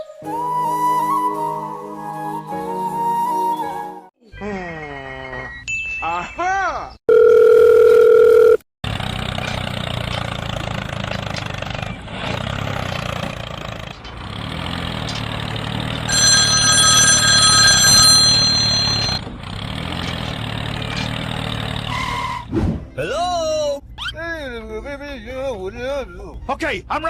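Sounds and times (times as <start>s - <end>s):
small engine running: 8.9s - 21.9s
ringing bell-like tone: 16.1s - 19.2s.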